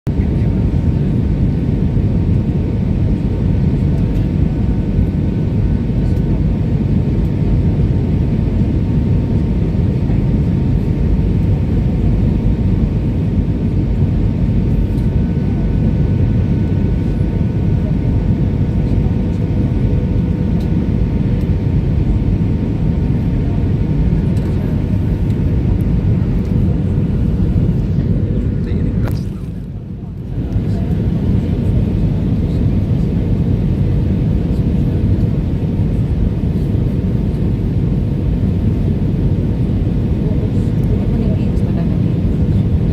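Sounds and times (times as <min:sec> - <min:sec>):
jet airliner rumble: 0:00.1 - 0:42.9.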